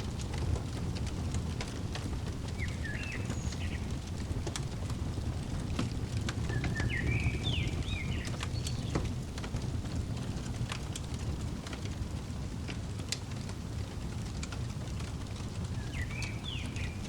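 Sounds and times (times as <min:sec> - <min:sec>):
fireplace crackling: 0:00.0 - 0:17.0
small bird chirping: 0:02.4 - 0:04.5, 0:06.4 - 0:09.1, 0:15.7 - 0:17.0.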